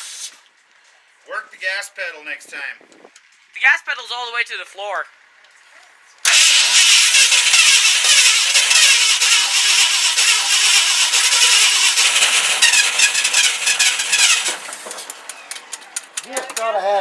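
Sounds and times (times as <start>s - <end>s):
truck engine cranking and firing: 6.2s - 17.0s.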